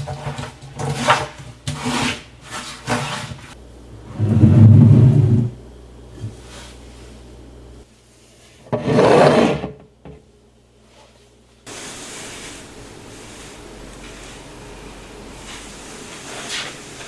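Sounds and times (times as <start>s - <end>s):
scraping across wooden surface: 0.0s - 5.5s, 8.7s - 9.8s.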